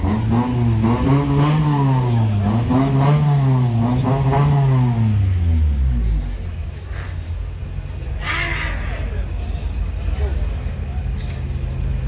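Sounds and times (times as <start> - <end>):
engine revving: 0.0 - 6.4.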